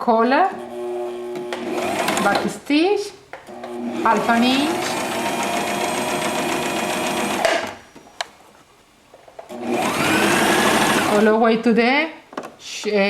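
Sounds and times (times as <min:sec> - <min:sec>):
sewing machine stitching: 0:00.6 - 0:02.6, 0:03.5 - 0:07.8, 0:09.5 - 0:11.3.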